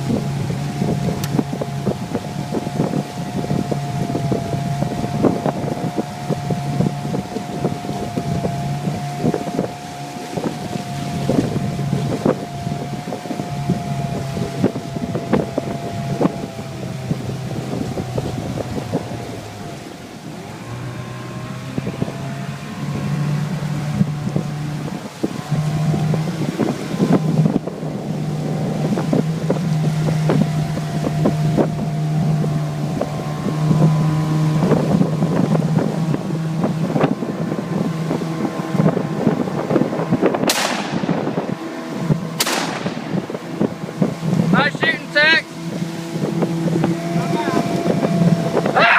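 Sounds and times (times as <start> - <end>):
outboard motor running: 0.0 - 48.9
wind on microphone: 0.0 - 48.9
shotgun blasts: 40.5 - 41.3, 42.4 - 43.2.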